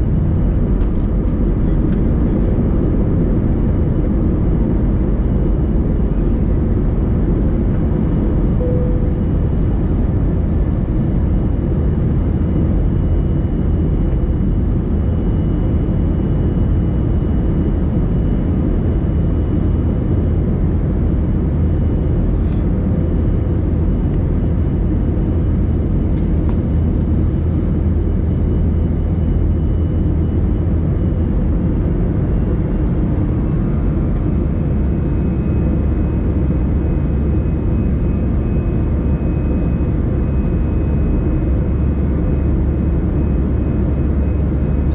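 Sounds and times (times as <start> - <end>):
jet engine and airflow rush: 0.0 - 44.9
faint high whine: 8.4 - 11.8.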